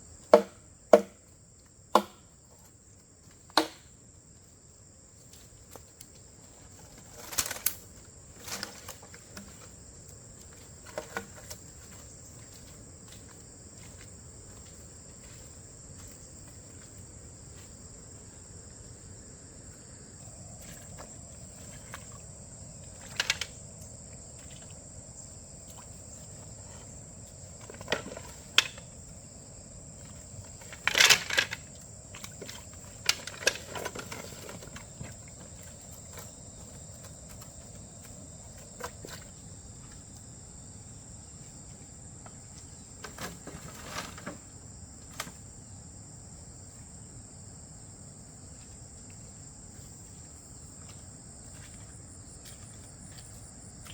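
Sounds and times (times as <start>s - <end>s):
sharp knocks: 0.3s - 1.2s, 1.9s - 2.2s, 3.6s - 3.9s.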